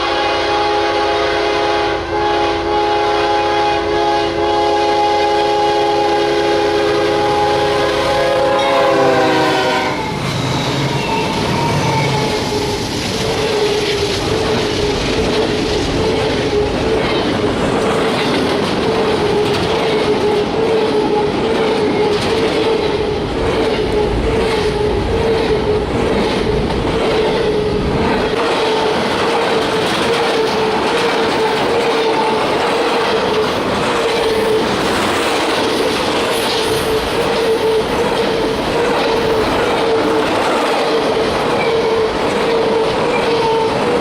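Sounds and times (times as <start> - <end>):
locomotive air horn chord: 0.0 - 10.1
freight cars clickety-clack rumble: 9.6 - 44.0.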